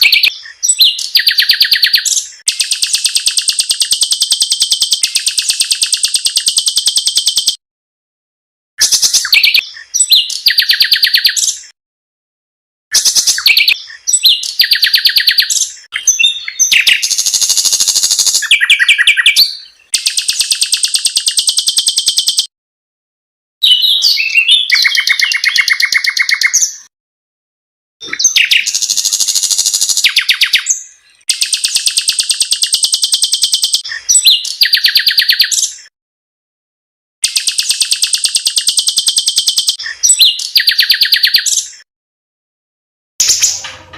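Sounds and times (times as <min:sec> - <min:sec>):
songbirds trilling and rattling: 0:28.1 - 0:35.8.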